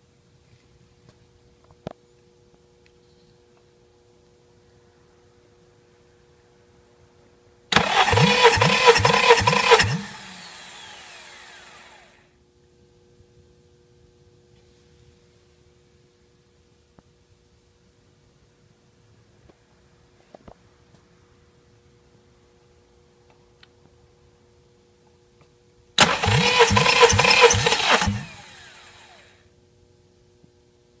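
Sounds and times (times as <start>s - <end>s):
engine cranking with starter motor: 7.7s - 12.1s, 26.0s - 29.3s
starter motor whine: 7.7s - 12.2s, 26.0s - 29.4s.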